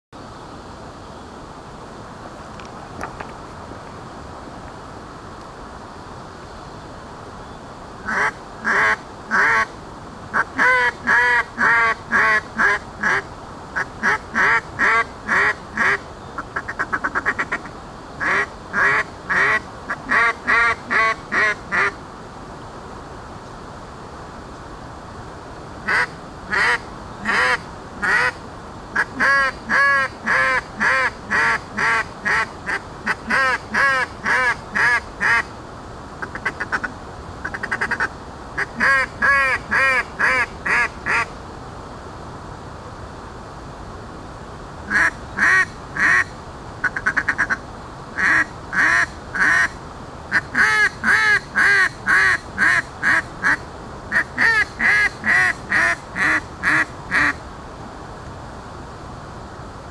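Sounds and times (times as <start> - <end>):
duck call quacks: 8.1 - 9.7, 10.3 - 13.2, 13.8 - 22.0, 25.9 - 28.4, 29.0 - 35.5, 36.2 - 41.3, 44.9 - 47.6, 48.2 - 57.4.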